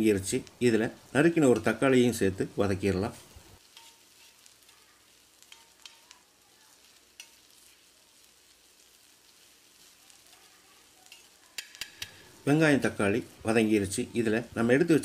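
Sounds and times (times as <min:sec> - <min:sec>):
soft sizzle on a griddle: 0:00.0 - 0:15.0
spatula clicking and scraping: 0:03.6 - 0:07.9, 0:09.3 - 0:12.3.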